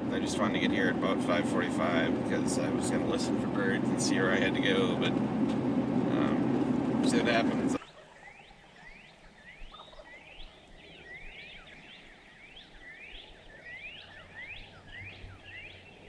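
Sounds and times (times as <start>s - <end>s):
chorus of spring peepers: 7.0s - 16.0s.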